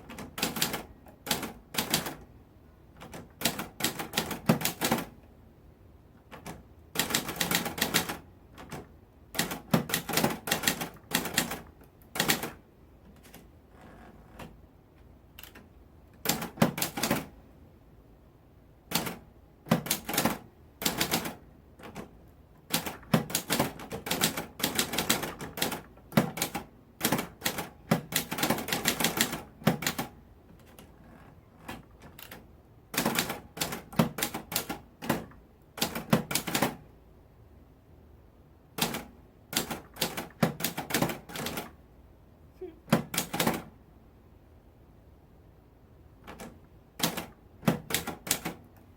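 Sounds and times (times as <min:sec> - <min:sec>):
typewriter keys clicking: 0:00.1 - 0:02.2, 0:03.0 - 0:05.1, 0:06.3 - 0:12.6, 0:15.4 - 0:17.3, 0:18.9 - 0:22.1, 0:22.7 - 0:30.9, 0:31.6 - 0:36.8, 0:38.8 - 0:41.7, 0:42.9 - 0:43.7, 0:46.2 - 0:48.7.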